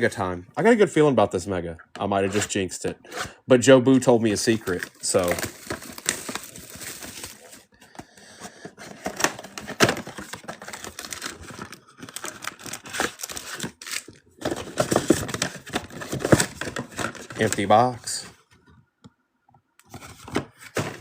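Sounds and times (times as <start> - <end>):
plastic wrapping crinkling and tearing: 4.6 - 7.7, 9.0 - 14.2.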